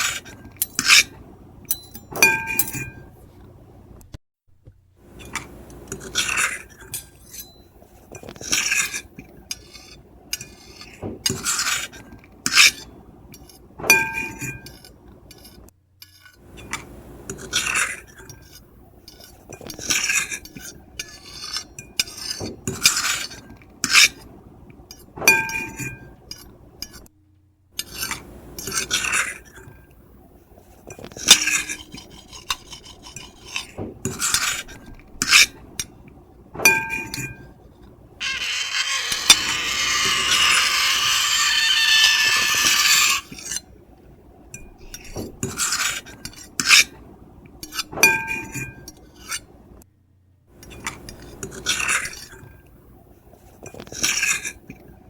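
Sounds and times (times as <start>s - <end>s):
cutlery scraping ceramic plate: 0.0s - 3.1s, 5.2s - 24.3s, 25.3s - 27.1s, 27.8s - 29.8s, 30.9s - 35.6s, 36.6s - 37.5s, 38.2s - 43.7s, 44.6s - 47.0s, 47.6s - 49.5s, 50.6s - 52.6s, 53.6s - 54.8s
cutlery clinking: 1.7s - 3.1s, 13.9s - 14.9s, 25.2s - 27.0s, 36.6s - 37.5s, 47.6s - 49.4s.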